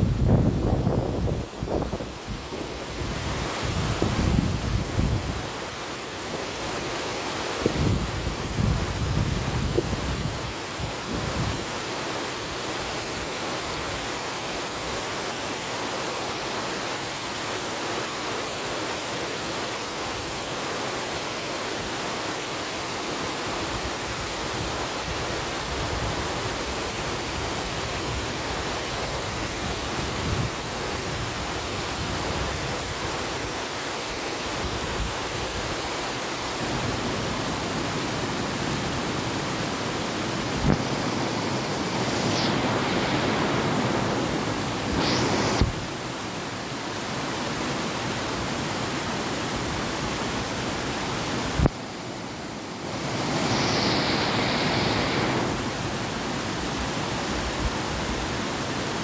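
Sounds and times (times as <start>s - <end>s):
river water rushing: 5.4s - 7.7s, 35.3s - 59.0s.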